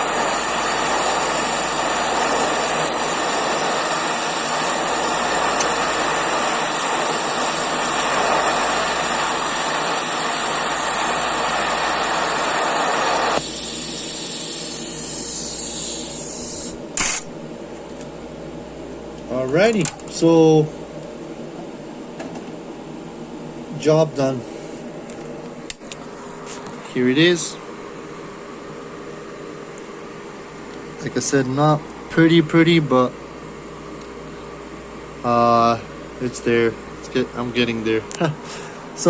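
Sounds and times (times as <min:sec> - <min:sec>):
welding arc hissing: 0:00.0 - 0:17.4.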